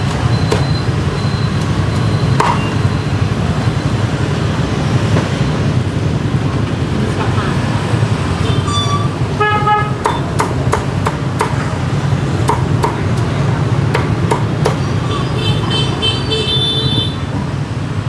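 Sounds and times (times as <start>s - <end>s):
street traffic: 0.0s - 18.0s
cleaver chopping on a block: 2.4s - 2.8s, 10.0s - 11.7s, 12.4s - 13.3s, 13.9s - 14.9s
pulsing horn beeping: 8.4s - 10.0s
vehicle horn honking: 8.4s - 10.1s, 15.0s - 17.2s.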